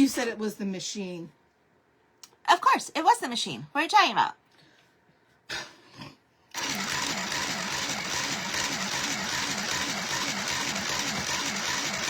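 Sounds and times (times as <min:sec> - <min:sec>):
sewing machine stitching: 0:06.5 - 0:12.0.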